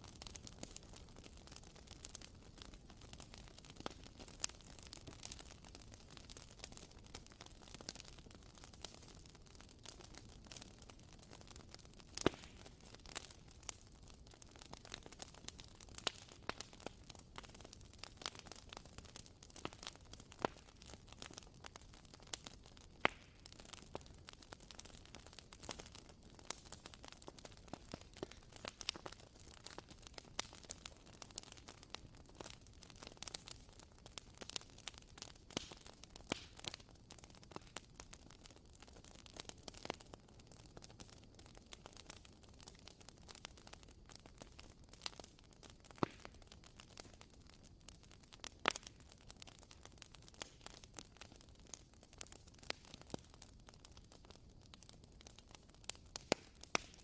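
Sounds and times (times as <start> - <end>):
faint steady hiss: 0.0 - 57.0.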